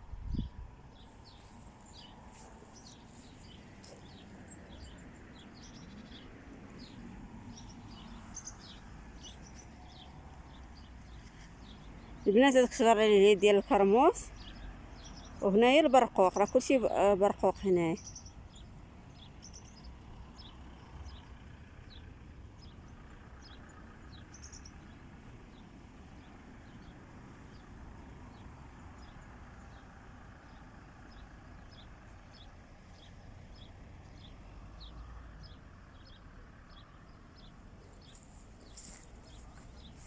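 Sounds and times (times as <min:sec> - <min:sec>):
small bird chirping: 0:00.3 - 0:12.2, 0:28.3 - 0:40.0.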